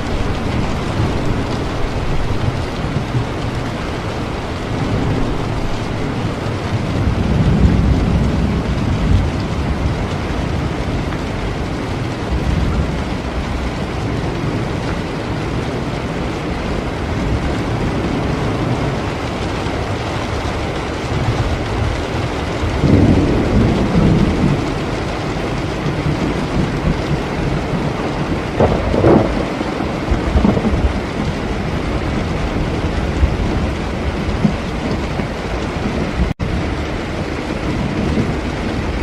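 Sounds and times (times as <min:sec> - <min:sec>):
heavy rain: 0:00.0 - 0:39.0
thunder rumble: 0:00.0 - 0:39.0.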